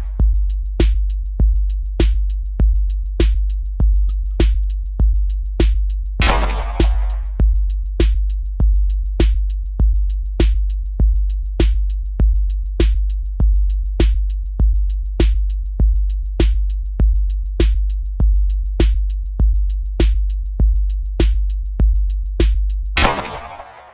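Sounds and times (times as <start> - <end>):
drum machine beat: 0.0 - 22.8
deep bass kick drum: 0.0 - 23.2
sharp ticks: 4.1 - 5.0
held low bass: 6.1 - 7.9.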